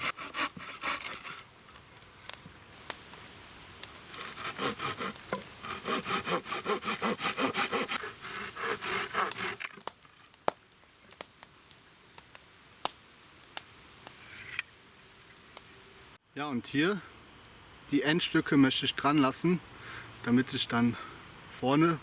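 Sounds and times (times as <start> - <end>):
hand saw cutting wood: 0.0 - 1.4, 4.1 - 9.8.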